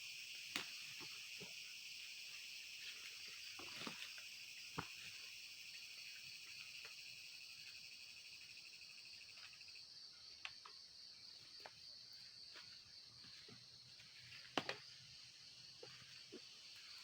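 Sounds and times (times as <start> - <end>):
pulsing insect trill: 0.0 - 9.8
insects trilling: 0.0 - 17.0.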